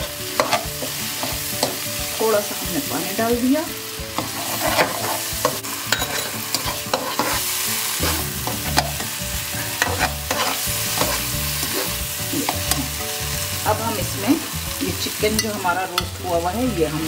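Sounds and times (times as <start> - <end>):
metal spatula scraping a pan: 0.0 - 1.8, 4.2 - 12.9
sauce sizzling in a pan: 0.0 - 17.0.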